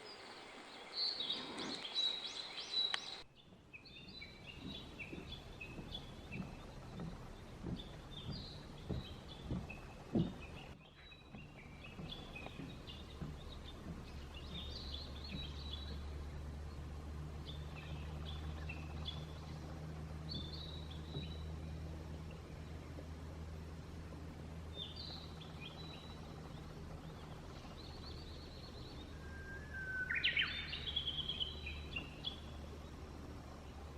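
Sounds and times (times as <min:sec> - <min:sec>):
small birds singing: 0:00.0 - 0:33.9
steady low hum: 0:00.0 - 0:33.9
low dull thumps: 0:03.4 - 0:28.3.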